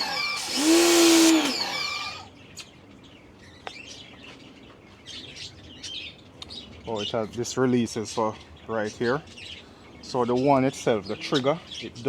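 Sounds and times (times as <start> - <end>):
pressure washer motor whining: 0.0 - 2.2
water spray hissing: 0.4 - 1.7.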